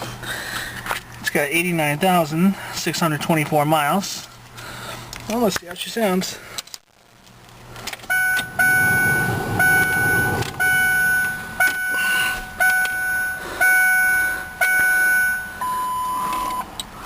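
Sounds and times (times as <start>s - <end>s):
dashboard warning chime: 8.1s - 16.7s
low rumble: 8.2s - 12.0s.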